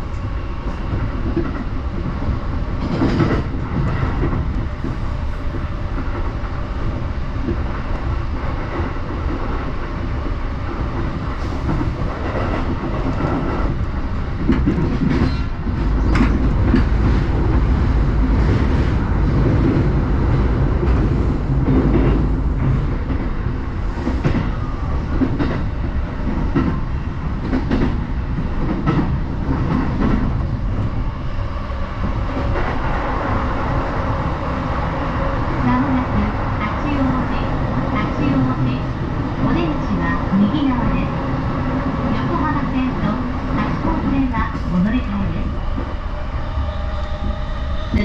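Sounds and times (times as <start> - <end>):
train wheels rumbling on rail: 0.0 - 48.0
clacks over rail joints: 2.8 - 6.3, 14.4 - 17.7, 27.4 - 30.4.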